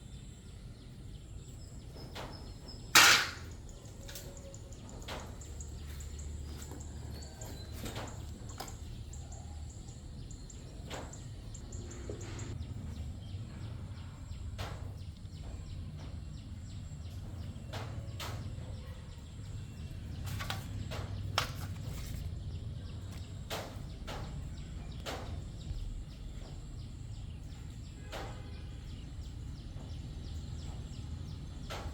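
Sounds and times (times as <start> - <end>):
sharp clicks and knocks: 2.0 - 5.9.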